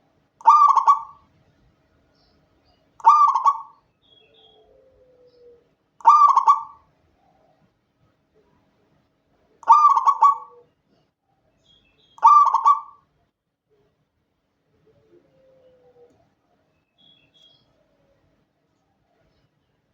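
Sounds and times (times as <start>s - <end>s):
dove cooing: 0.4s - 1.2s, 3.0s - 7.6s, 9.6s - 10.7s, 12.2s - 13.0s, 14.7s - 16.4s.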